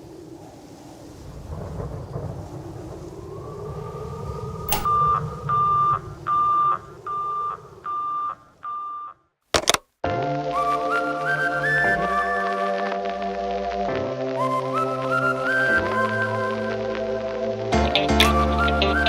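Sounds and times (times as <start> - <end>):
click: 4.7 - 5.0
electronic beeps: 4.7 - 9.1
music: 10.0 - 19.0.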